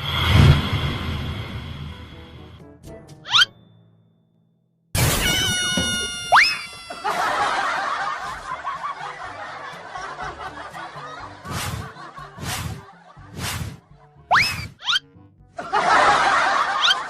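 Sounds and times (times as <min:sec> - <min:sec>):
cartoon music: 0:03.2 - 0:03.6, 0:05.0 - 0:08.1, 0:14.3 - 0:15.2, 0:16.7 - 0:17.0
snickering laughter: 0:06.8 - 0:13.4, 0:15.6 - 0:17.0
sharp rising glide effect: 0:13.4 - 0:15.0.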